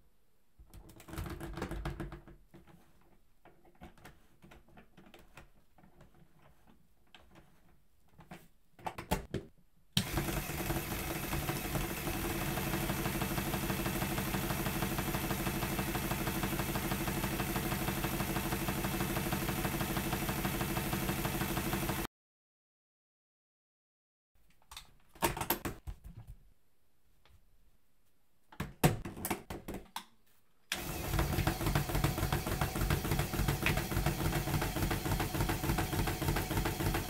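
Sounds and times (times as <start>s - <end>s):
small motor rattling: 10.0s - 22.1s, 30.8s - 37.0s.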